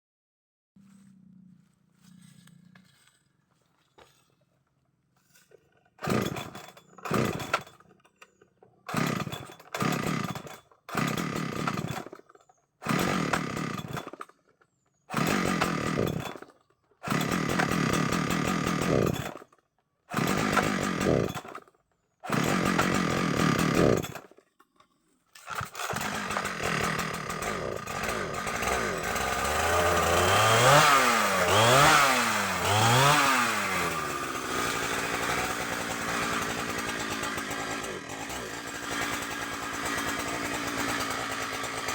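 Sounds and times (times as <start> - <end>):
chainsaw engine revving: 6.0 - 7.8, 8.9 - 14.3, 15.0 - 24.4, 25.4 - 41.9.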